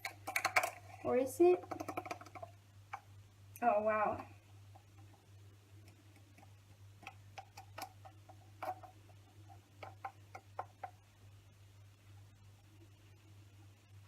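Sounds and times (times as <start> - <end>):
spoon and packet clicking: 0.0 - 0.8
low steady hum: 0.0 - 14.0.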